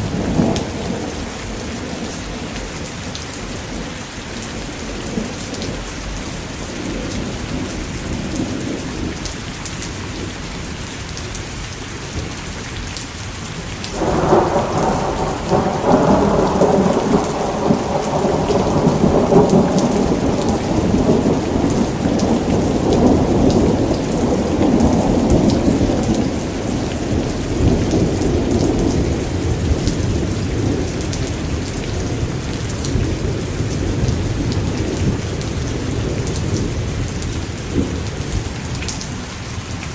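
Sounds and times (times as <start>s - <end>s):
thunder rumbling: 0.0s - 9.2s, 13.9s - 39.6s
steady rain: 0.0s - 39.9s.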